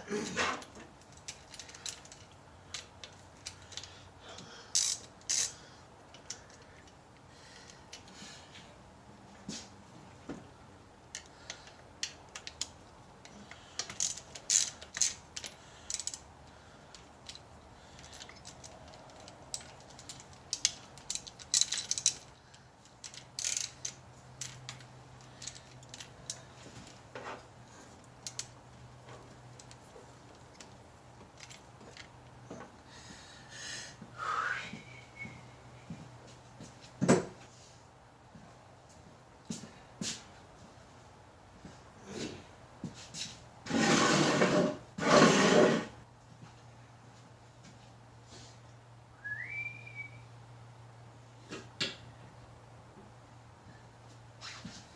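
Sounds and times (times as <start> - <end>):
ratchet wrench clicking: 4.7 - 6.6, 13.5 - 26.4.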